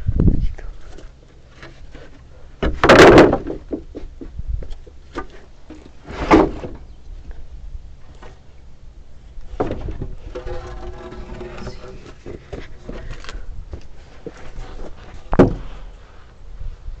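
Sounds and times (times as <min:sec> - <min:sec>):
loud wooden clunks: 0:02.6 - 0:04.1, 0:06.1 - 0:06.9, 0:09.5 - 0:13.1, 0:15.3 - 0:15.7.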